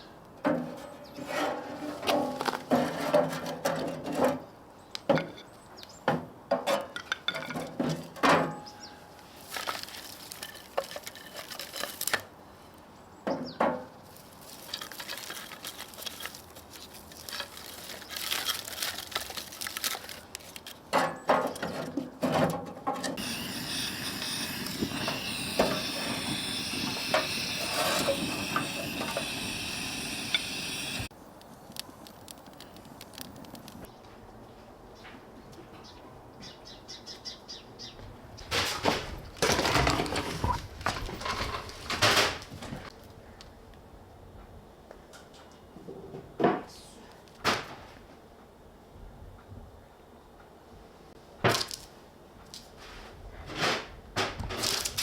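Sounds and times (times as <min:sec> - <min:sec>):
steady hiss: 0:23.2 - 0:33.9.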